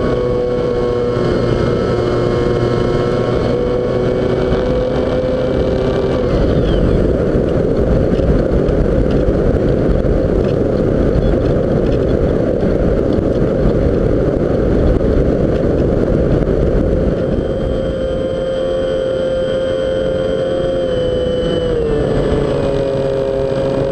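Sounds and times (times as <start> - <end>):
model plane motor whine: 0.0 - 9.3, 17.0 - 23.9
wind buffeting microphone: 0.0 - 23.9.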